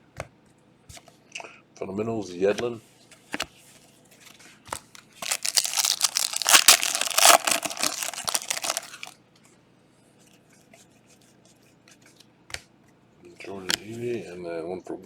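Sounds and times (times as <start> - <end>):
plastic wrapper tearing and crinkling: 4.8 - 9.1.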